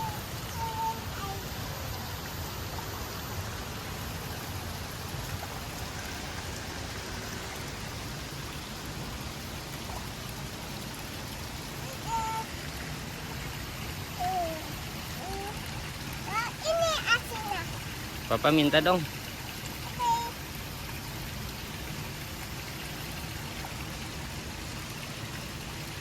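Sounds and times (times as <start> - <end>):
child's high voice: 0.0 - 2.1, 11.8 - 12.5, 14.1 - 17.8, 20.0 - 20.4
stream and waterfall: 0.0 - 26.0.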